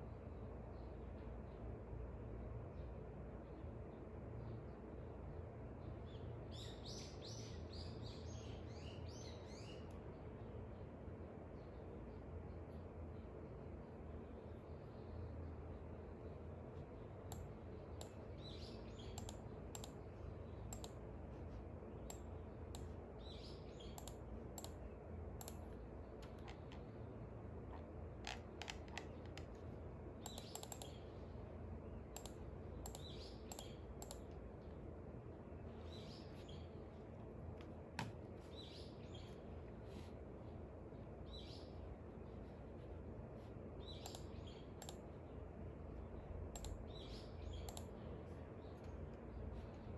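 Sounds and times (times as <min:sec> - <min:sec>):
small birds chirping: 0:00.0 - 0:49.9
steady low hum: 0:00.0 - 0:49.9
light clicks and taps on desk: 0:24.0 - 0:26.9, 0:27.7 - 0:31.0, 0:37.5 - 0:38.2.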